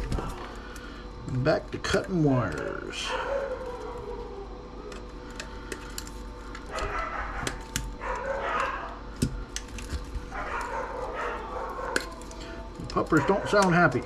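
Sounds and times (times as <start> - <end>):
dogs whining: 0.0 - 14.0
wire cutters snipping: 5.4 - 14.0.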